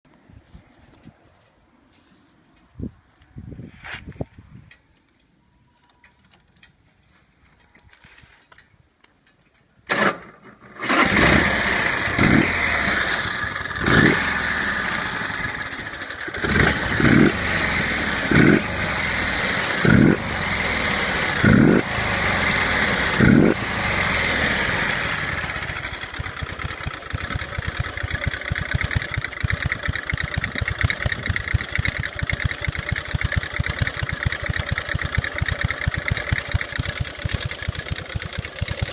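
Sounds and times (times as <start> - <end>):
motorcycle engine cranking: 8.4 - 38.9
motorcycle engine revving: 10.0 - 38.9
motorcycle engine idling: 11.6 - 38.9.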